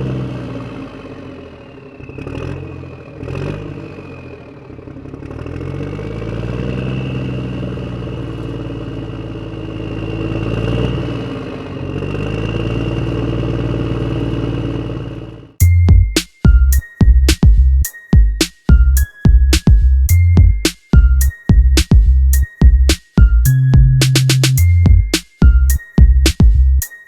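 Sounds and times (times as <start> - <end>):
loud music: 15.6 - 27.0.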